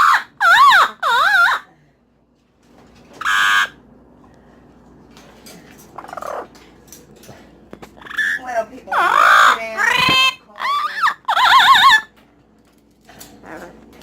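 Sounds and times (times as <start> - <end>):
pet bird squawking: 0.0 - 1.7, 3.2 - 3.8, 6.0 - 6.6, 8.0 - 12.2.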